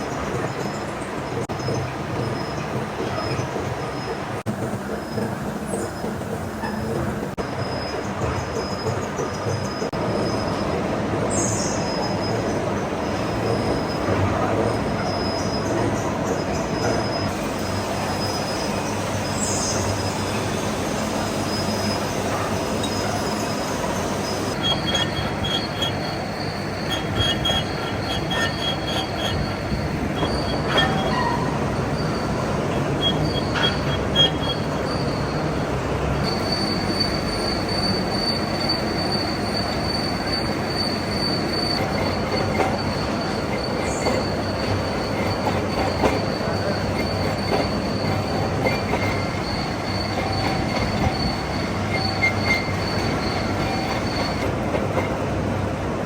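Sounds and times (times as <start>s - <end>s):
metal cutting squeal: 16.8s - 35.6s, 36.2s - 54.5s.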